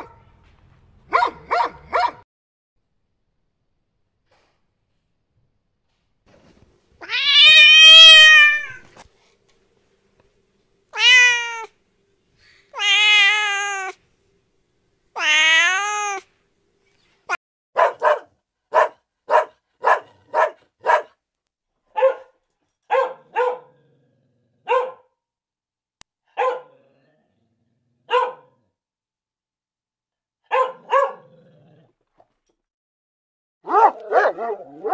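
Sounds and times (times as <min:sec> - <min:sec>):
dog barking: 0:00.0 - 0:00.3, 0:01.1 - 0:02.2, 0:17.8 - 0:21.2, 0:21.9 - 0:23.8, 0:24.6 - 0:25.2, 0:26.3 - 0:26.8, 0:28.0 - 0:28.6, 0:30.4 - 0:31.4, 0:33.6 - 0:34.9
cat meowing: 0:07.0 - 0:08.9, 0:11.0 - 0:11.7, 0:12.7 - 0:14.0, 0:15.2 - 0:16.3.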